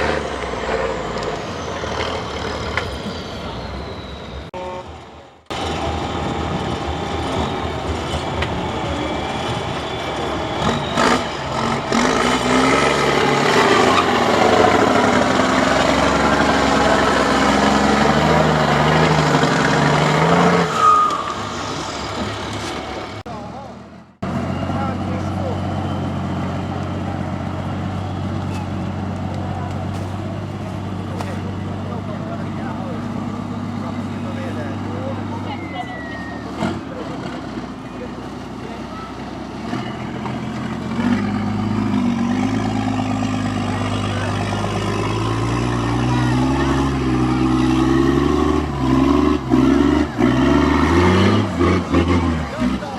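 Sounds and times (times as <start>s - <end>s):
truck engine running hard: 0.0s - 52.9s
brief high squeal: 3.0s - 4.5s, 20.6s - 22.8s, 35.4s - 36.6s.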